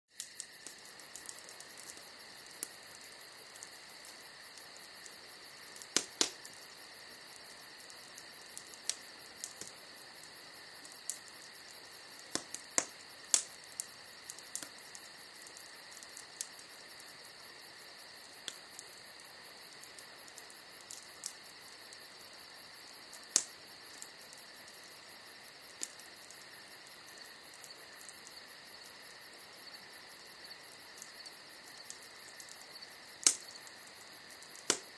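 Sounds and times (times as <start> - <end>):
wood fire crackling: 0.1 - 34.9
sharp pops: 34.6 - 34.9.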